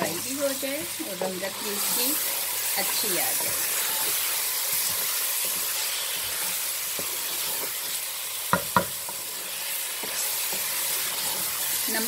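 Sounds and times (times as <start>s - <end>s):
curry sizzling in oil: 0.0s - 12.0s
spatula stirring and scraping: 0.0s - 12.0s
spatula knocking against pot: 8.5s - 9.0s.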